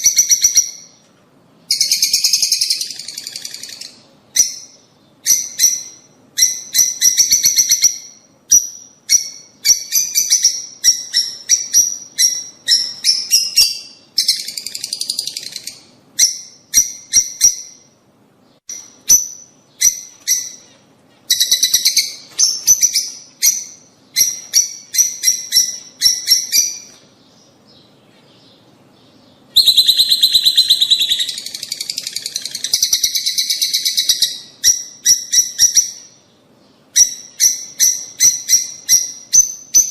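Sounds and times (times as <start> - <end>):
lovebirds chirping shrilly: 18.6 - 39.9.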